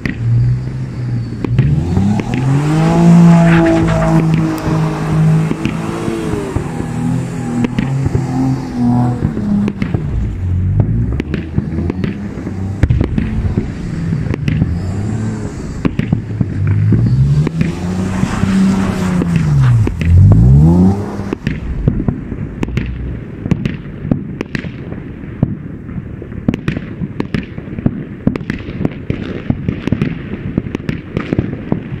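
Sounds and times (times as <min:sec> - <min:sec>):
fireworks banging and crackling: 0:00.0 - 0:00.4, 0:01.3 - 0:32.0
car engine revving: 0:00.0 - 0:24.4.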